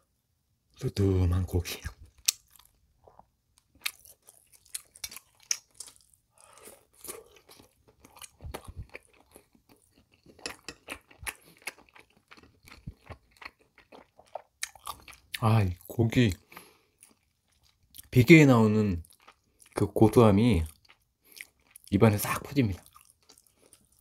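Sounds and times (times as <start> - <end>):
chewing with mouth clicks: 2.1 - 15.4, 20.6 - 21.9, 22.8 - 24.0.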